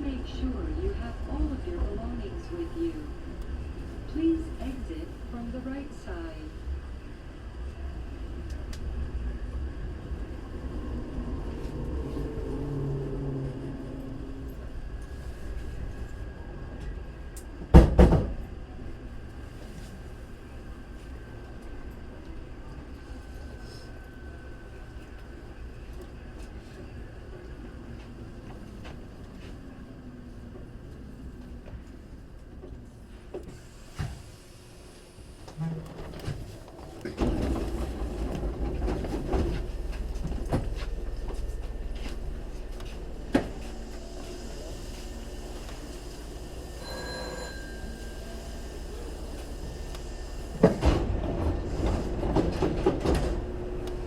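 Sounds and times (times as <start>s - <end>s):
train car humming: 0.0s - 54.0s
electric train motor hum: 37.2s - 54.0s.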